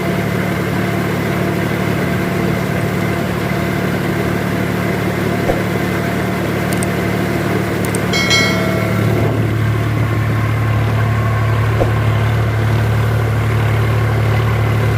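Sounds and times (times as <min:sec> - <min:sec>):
short high-pitched tone: 0:08.2 - 0:09.4.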